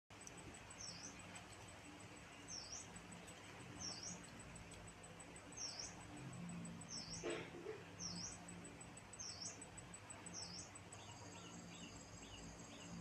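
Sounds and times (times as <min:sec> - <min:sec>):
faint high ticking: 0:00.1 - 0:07.2
low background hiss: 0:00.1 - 0:13.0.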